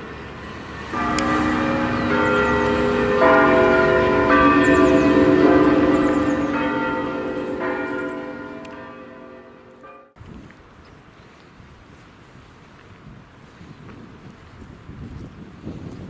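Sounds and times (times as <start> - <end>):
church bells ringing: 0.0 - 10.2
wind rumble: 0.0 - 16.0.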